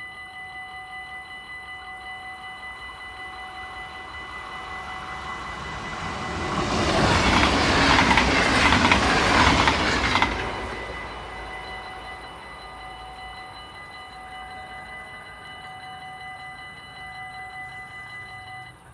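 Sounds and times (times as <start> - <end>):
electric train passing: 0.0 - 18.9
level crossing warning bell: 0.0 - 18.9
train wheel clicks: 5.6 - 12.2.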